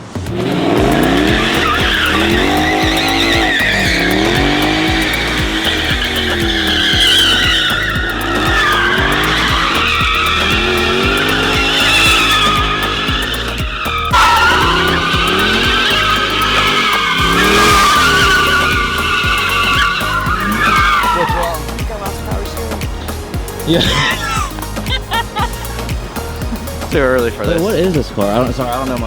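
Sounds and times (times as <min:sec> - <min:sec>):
car engine revving: 0:00.0 - 0:29.0
tires squealing on pavement: 0:00.0 - 0:29.0.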